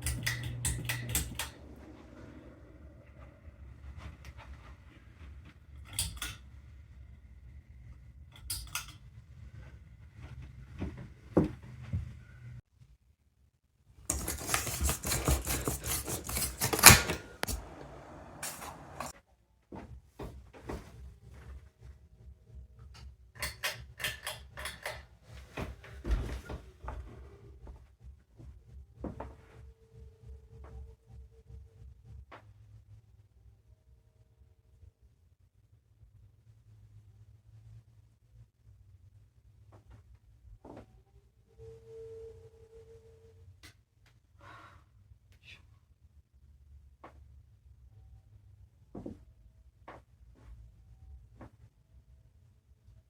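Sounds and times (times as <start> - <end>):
ceiling fan humming: 0.0 - 12.6, 14.1 - 19.1.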